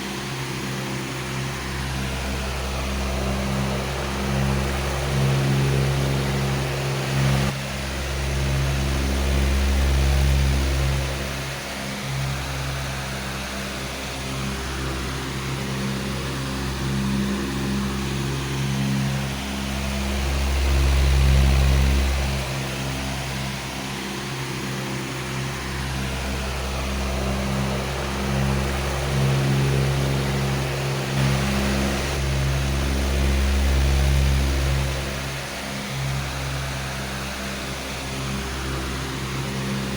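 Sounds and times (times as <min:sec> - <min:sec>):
electric fan running: 0:00.0 - 0:39.9.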